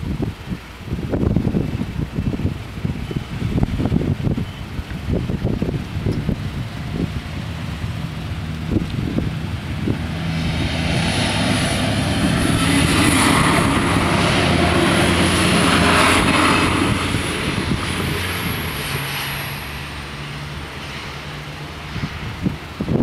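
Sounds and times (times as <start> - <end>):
diesel railcar engine drone: 0.0 - 23.0
train wheels rushing: 7.0 - 20.2.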